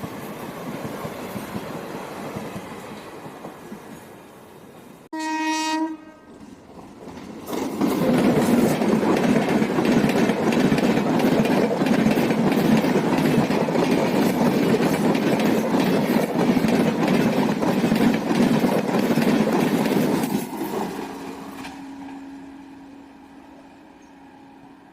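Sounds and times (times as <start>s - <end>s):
train rumbling past: 0.0s - 24.9s
wheels clicking over rail joints: 6.3s - 21.8s.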